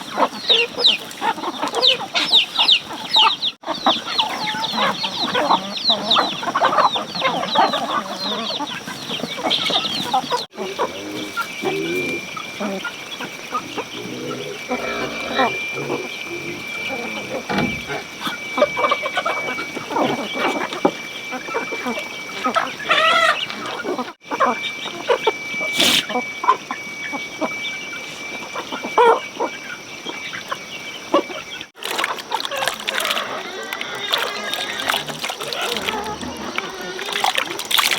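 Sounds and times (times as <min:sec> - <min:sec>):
chicks peeping: 0:00.0 - 0:37.7
chickens clucking: 0:00.0 - 0:37.9
low patterned calls: 0:00.0 - 0:37.9
thin steady high tone: 0:08.7 - 0:31.7
steady high whine: 0:10.9 - 0:31.7.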